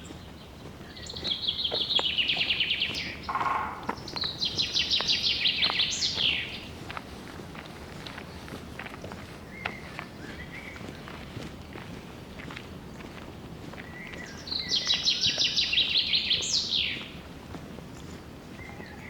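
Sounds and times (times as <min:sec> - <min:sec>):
faint footsteps on trail: 0:00.0 - 0:19.0
songbird trilling: 0:00.9 - 0:06.7, 0:14.0 - 0:17.1.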